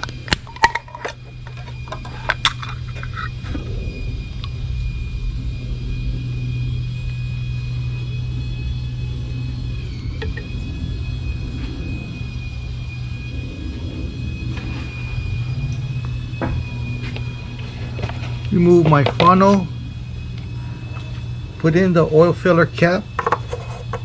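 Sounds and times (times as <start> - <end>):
mechanical rumble: 0.0 - 24.0
thin high whine: 0.0 - 24.0.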